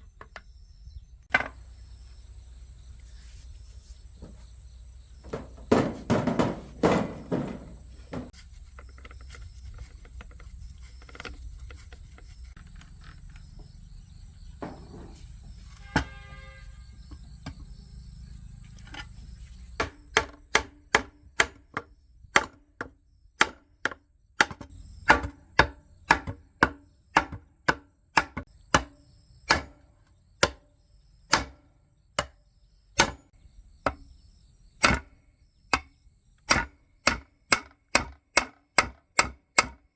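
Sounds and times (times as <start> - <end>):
sharp knocks: 5.2 - 8.4, 14.6 - 16.4.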